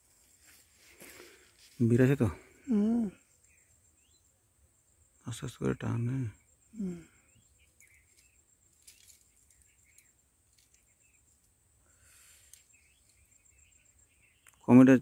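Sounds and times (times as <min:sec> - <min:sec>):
faint bird chirps: 0:00.0 - 0:15.0
person murmuring: 0:02.6 - 0:03.2, 0:06.8 - 0:07.1.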